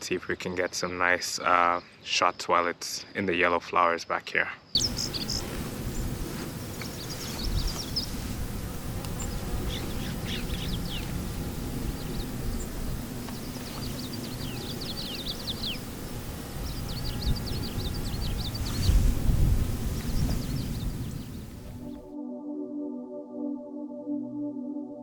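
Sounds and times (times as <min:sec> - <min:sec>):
songbird chirping: 0:03.4 - 0:22.1.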